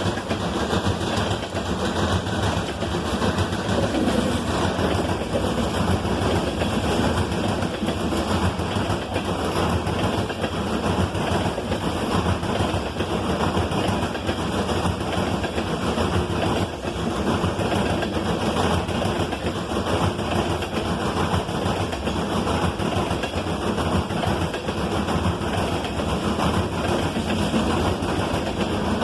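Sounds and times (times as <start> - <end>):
train rumbling past: 0.0 - 21.0
wheels clattering on rails: 0.0 - 29.0.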